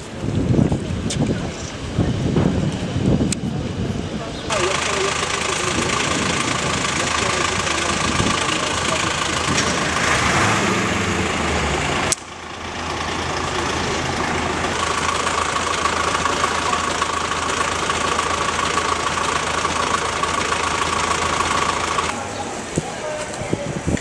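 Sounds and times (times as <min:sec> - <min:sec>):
background noise: 0:00.0 - 0:24.0
engine hum: 0:04.5 - 0:22.8.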